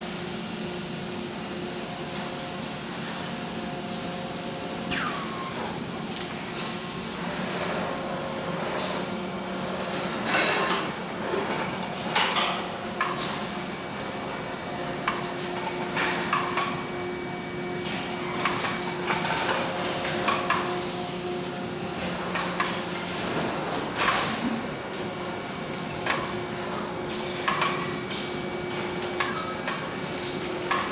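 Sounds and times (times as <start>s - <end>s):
machine hum: 4.6s - 8.6s
welding guns clacking and hissing: 27.3s - 30.9s.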